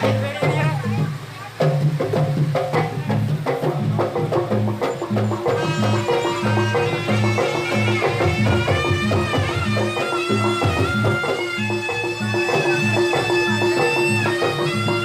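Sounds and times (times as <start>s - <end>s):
drums and gongs beat: 0.0s - 15.0s
reedy wind instrument melody: 4.5s - 15.0s.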